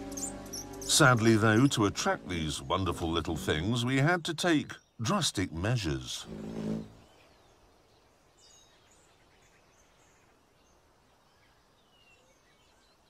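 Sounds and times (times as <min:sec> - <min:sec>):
short high bird chirps: 0:00.0 - 0:01.0.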